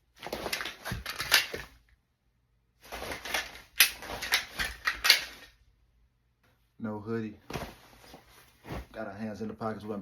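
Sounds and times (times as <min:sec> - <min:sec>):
fabric rustling: 0:00.0 - 0:01.8, 0:02.8 - 0:05.6, 0:07.4 - 0:10.0.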